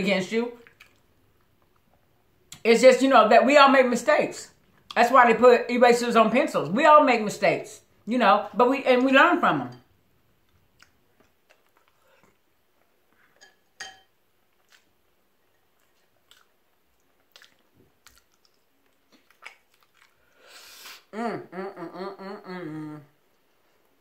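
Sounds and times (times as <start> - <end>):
person chewing seafood: 10.4 - 13.6, 14.5 - 20.9.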